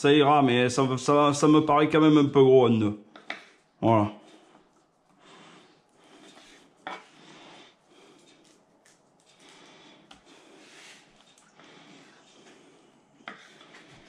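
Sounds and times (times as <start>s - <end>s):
knife rubbing and scraping: 3.2s - 14.0s.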